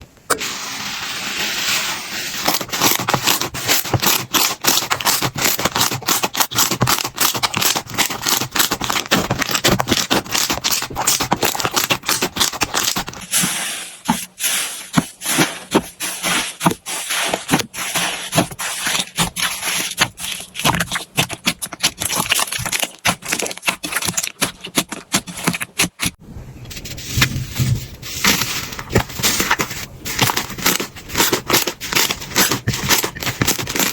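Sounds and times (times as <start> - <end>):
slime crackling and popping: 2.4 - 13.2, 18.3 - 26.1.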